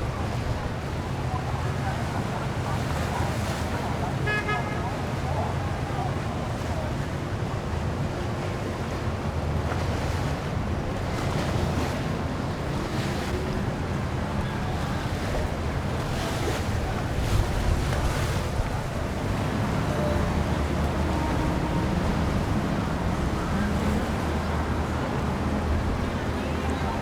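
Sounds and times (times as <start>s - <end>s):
boat engines rumbling: 0.0s - 27.0s
water washing: 9.0s - 27.0s
wind buffeting microphone: 9.6s - 27.0s.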